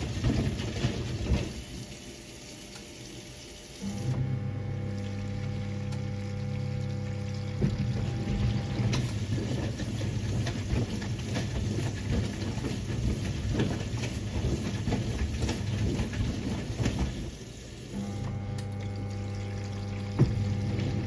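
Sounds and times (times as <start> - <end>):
washing machine water sloshing: 0.0 - 21.0
steady electric hum: 3.8 - 9.0.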